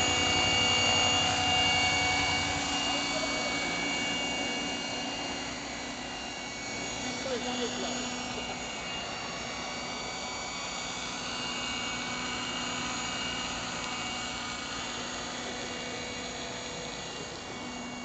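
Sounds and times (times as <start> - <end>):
helicopter rotor noise: 0.0 - 18.0
motor and gear whine: 0.0 - 18.0.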